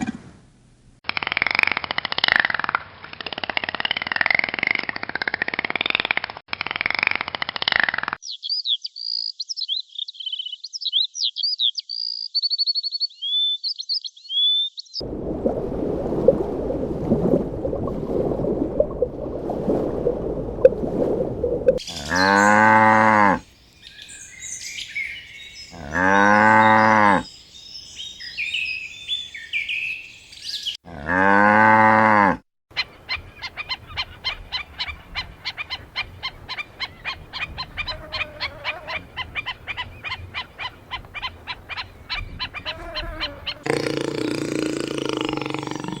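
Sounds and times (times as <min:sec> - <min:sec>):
small birds chirping: 0:08.2 - 0:15.0, 0:21.8 - 0:22.8, 0:23.4 - 0:30.8, 0:38.8 - 0:46.0
cow mooing: 0:22.0 - 0:23.4, 0:25.8 - 0:27.3, 0:30.9 - 0:32.4, 0:43.6 - 0:46.0.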